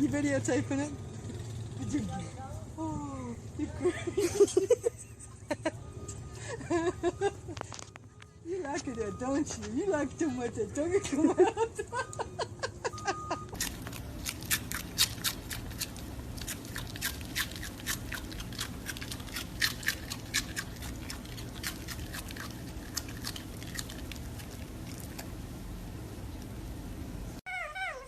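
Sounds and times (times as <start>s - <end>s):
pet chewing with crisp clicks: 13.5s - 25.4s.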